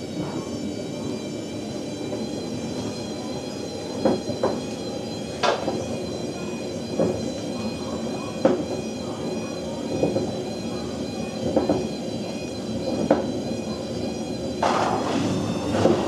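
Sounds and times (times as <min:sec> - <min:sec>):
washer-dryer running: 0:14.4 - 0:16.0.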